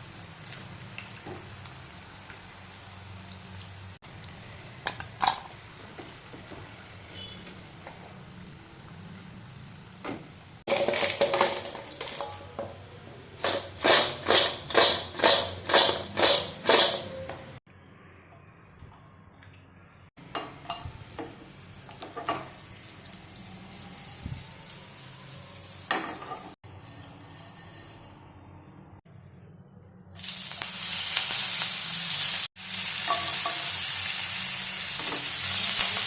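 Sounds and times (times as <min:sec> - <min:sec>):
frying in hot oil: 0:00.0 - 0:17.1, 0:20.4 - 0:28.1, 0:30.1 - 0:36.0
metal utensil stirring pan: 0:25.9 - 0:28.3.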